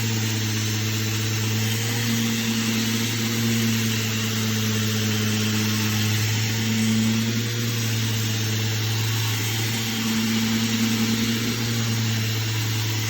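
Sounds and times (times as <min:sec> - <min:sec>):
electric sander on wood: 0:00.0 - 0:13.0.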